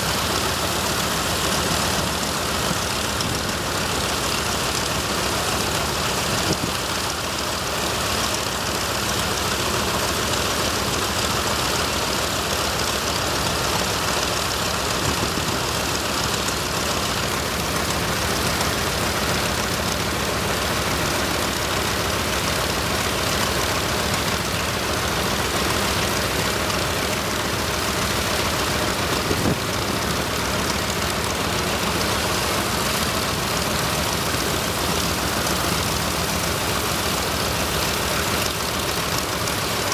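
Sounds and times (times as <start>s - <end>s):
radial engine running: 0.0s - 39.9s.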